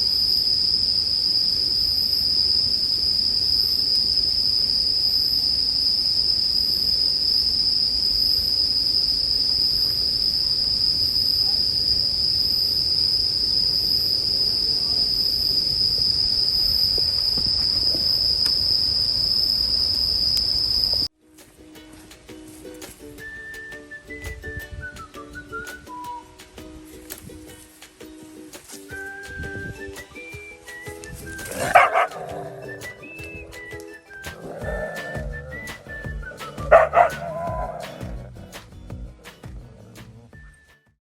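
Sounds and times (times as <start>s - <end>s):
crickets chirping: 0.0s - 21.1s, 24.1s - 40.3s
campfire crackling: 0.0s - 23.2s.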